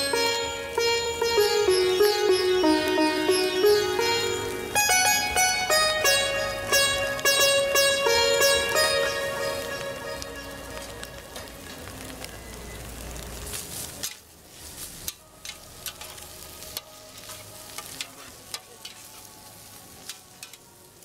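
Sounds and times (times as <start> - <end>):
food sizzling in a wok: 0.0 - 21.0
utensil clicking on pan: 20.0 - 20.7.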